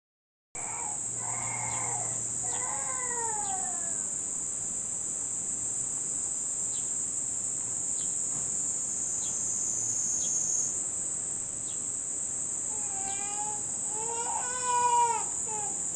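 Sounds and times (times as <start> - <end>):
baby crying: 0.6 - 4.1, 12.7 - 15.9
cicadas droning: 0.6 - 15.9.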